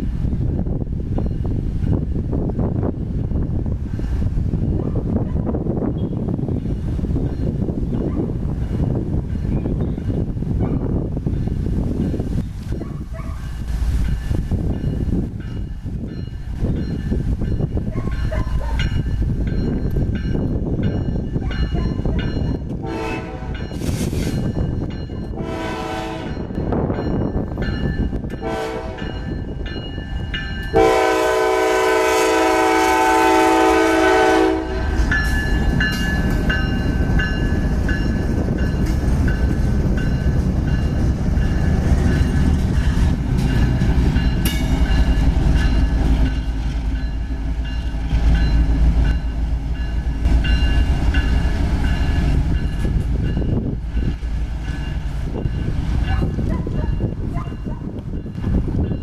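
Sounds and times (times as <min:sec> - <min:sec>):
locomotive air horn blasts: 0:22.8 - 0:23.8, 0:25.3 - 0:26.5, 0:28.4 - 0:29.2, 0:30.7 - 0:35.0.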